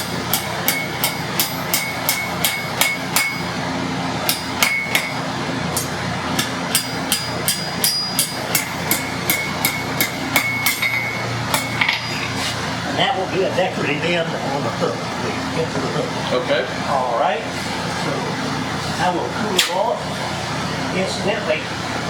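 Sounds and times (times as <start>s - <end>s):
hammer striking iron on anvil: 0.0s - 3.6s, 4.2s - 5.2s, 5.8s - 12.4s
steady low hum: 0.0s - 22.0s.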